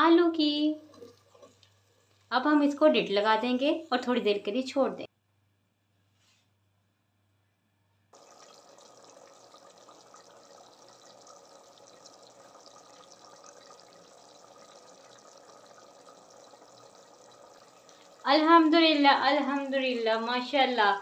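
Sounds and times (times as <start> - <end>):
meat sizzling in oil: 8.2 - 18.2.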